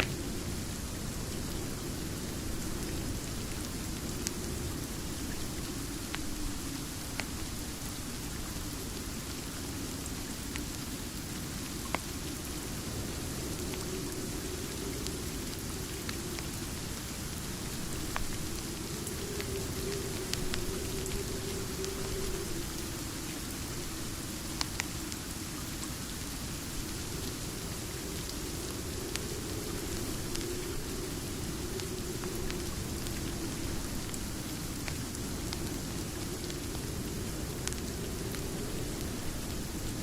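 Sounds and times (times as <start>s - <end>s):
steady rain: 0.0s - 40.0s
fireplace crackling and popping: 11.8s - 25.1s, 27.1s - 40.0s.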